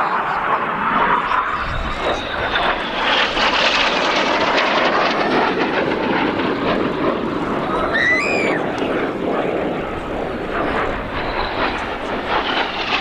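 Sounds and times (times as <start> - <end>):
high jet whine: 0.0 - 13.0
jet aircraft roar: 0.0 - 13.0.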